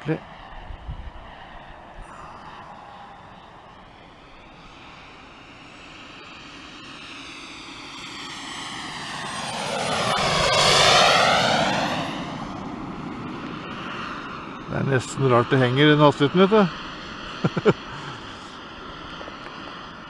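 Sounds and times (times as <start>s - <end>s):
model jet engine passing: 0.0s - 20.0s.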